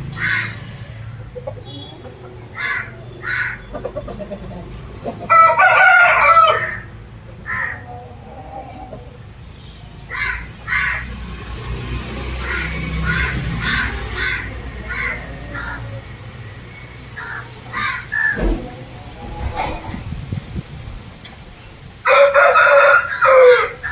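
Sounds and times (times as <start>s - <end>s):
birds cawing: 0.0s - 11.4s, 12.2s - 20.0s, 22.1s - 23.9s
low steady rumble: 18.3s - 21.9s.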